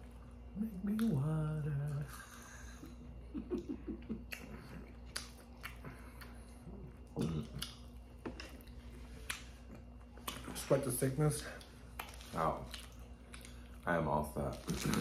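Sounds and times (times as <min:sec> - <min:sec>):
chewing crispy food: 0:04.1 - 0:15.0.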